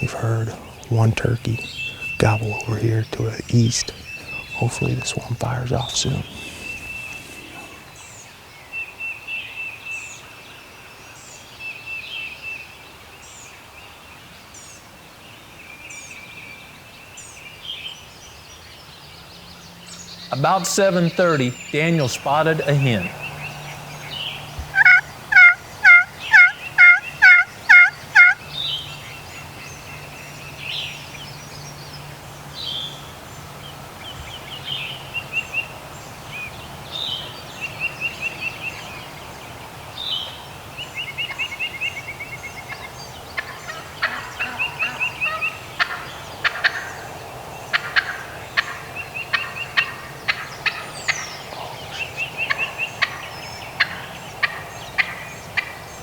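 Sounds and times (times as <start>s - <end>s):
songbirds chirping and trilling: 0.0s - 56.0s
turkey yelping: 24.7s - 28.4s.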